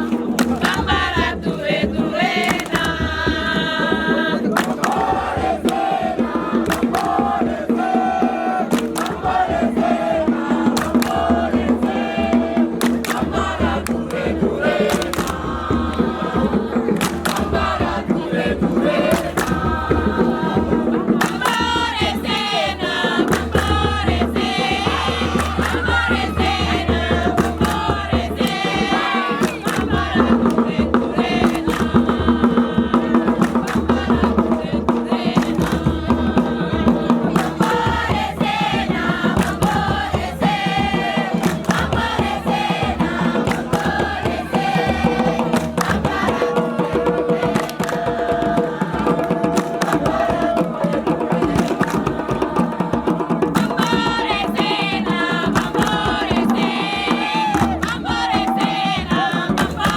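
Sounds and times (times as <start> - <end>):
group chanting: 0.0 - 59.9
steady percussive beat: 0.0 - 59.9.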